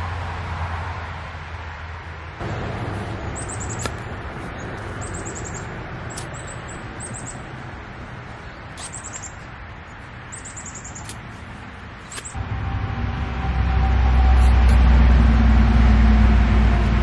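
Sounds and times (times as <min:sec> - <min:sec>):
small bird chirping trills: 0:03.3 - 0:04.0, 0:04.6 - 0:07.5, 0:08.4 - 0:09.5, 0:10.3 - 0:11.2.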